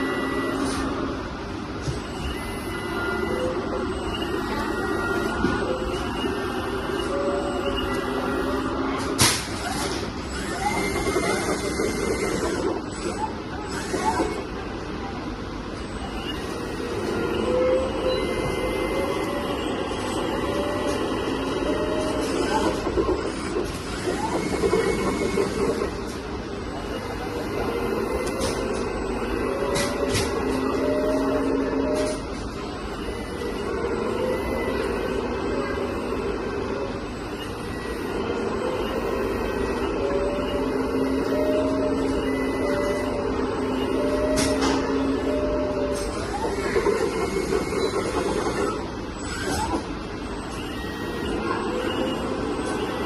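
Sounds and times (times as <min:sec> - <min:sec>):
toy bulldozer motors whirring: 0:09.7 - 0:14.5.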